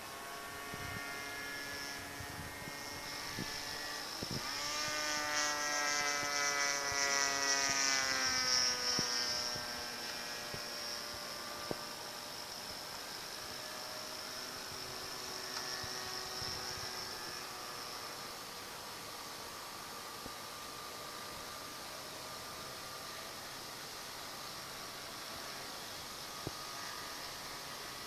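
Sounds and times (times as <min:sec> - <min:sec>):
model plane engine buzzing drone: 0:00.0 - 0:28.0.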